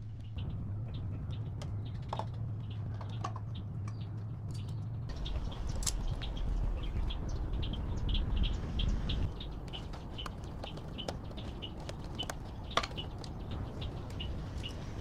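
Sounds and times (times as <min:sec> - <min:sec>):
low hum: 0:00.0 - 0:10.5.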